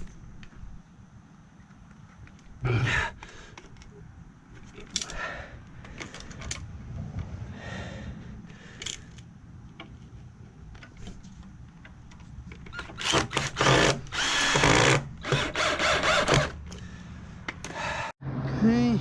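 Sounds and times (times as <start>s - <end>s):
power drill drilling into wood: 12.8s - 16.6s.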